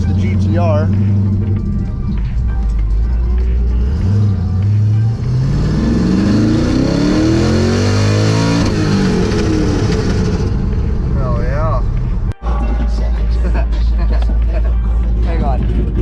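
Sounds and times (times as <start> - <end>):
car engine accelerating: 0.0 - 12.4.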